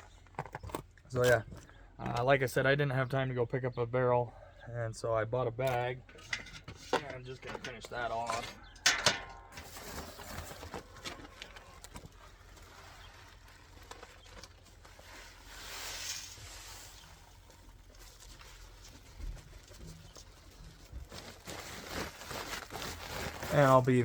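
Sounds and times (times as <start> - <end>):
bag rustling: 8.2 - 19.8, 20.8 - 24.0
grain pouring hiss: 15.0 - 17.5.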